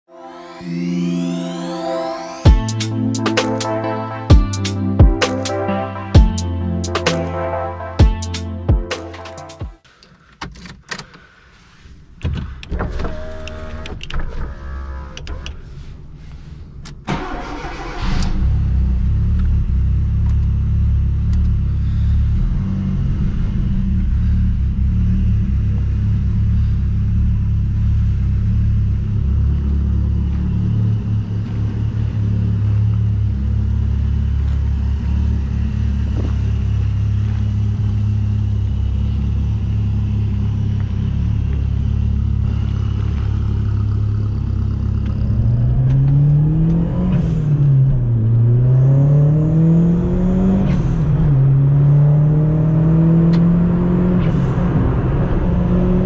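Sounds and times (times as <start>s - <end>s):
car engine idling: 15.5s - 45.6s.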